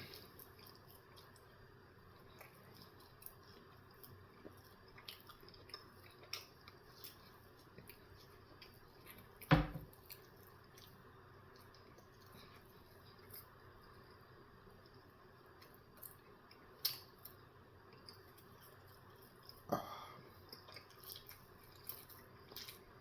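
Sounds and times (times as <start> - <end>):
person chewing: 0.0 - 14.2, 14.8 - 23.0.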